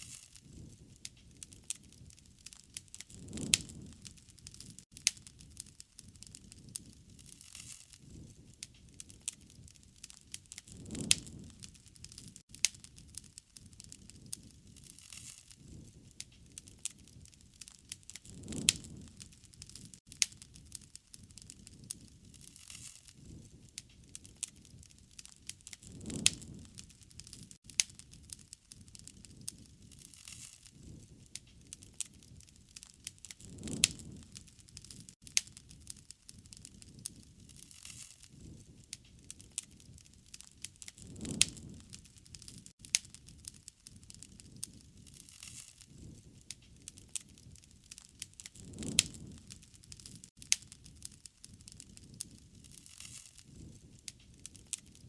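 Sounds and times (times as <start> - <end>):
campfire pops and snaps: 0.0 - 55.0
rush of burning flames: 0.0 - 55.0.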